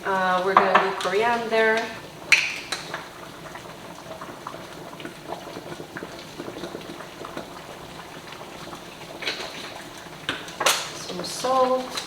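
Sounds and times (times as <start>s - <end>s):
soup bubbling in a pot: 0.0s - 12.0s.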